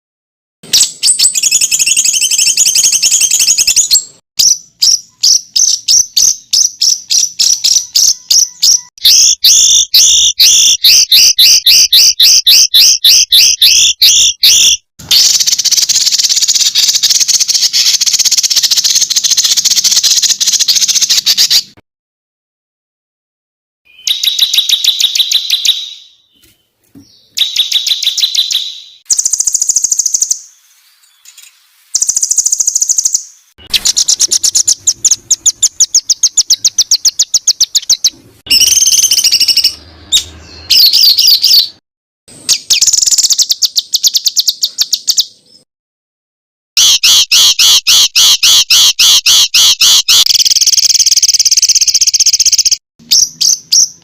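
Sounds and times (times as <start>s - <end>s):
songbirds chattering trills: 1.0s - 21.6s, 24.0s - 41.8s.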